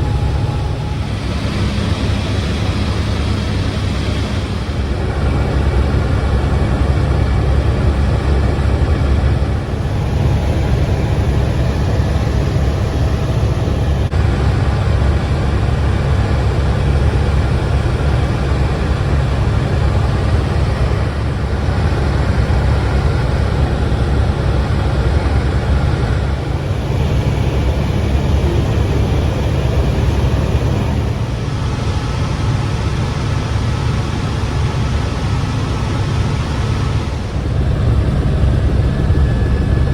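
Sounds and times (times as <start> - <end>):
helicopter engine and rotor rumble: 0.0 - 39.9.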